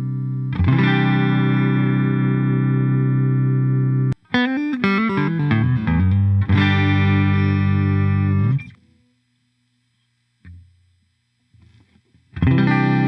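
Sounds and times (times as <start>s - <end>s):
electric guitar through effects: 0.0s - 9.0s, 11.6s - 13.0s.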